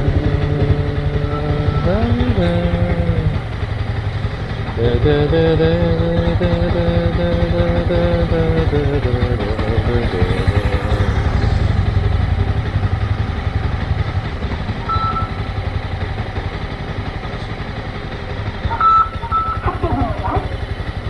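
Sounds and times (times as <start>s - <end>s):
motorcycle engine throbbing: 0.0s - 21.0s
short high beep: 14.9s - 15.4s, 18.7s - 19.7s.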